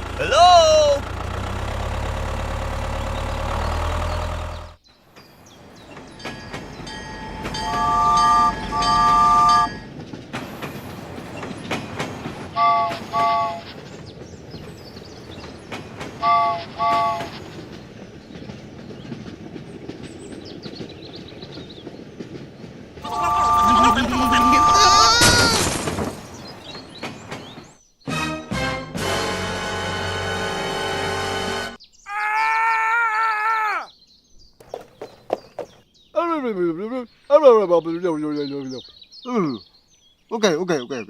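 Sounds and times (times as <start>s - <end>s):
engine hum: 0.0s - 27.6s
three-tone horn blasts: 7.3s - 9.8s, 12.6s - 13.8s, 16.2s - 17.4s, 23.0s - 25.4s, 28.1s - 31.8s.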